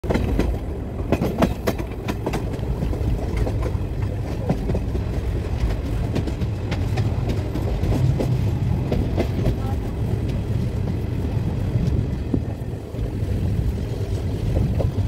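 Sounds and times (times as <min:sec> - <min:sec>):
sharp clicks and clacks: 0:00.0 - 0:11.1
train wheels rumbling on rails: 0:00.0 - 0:15.0.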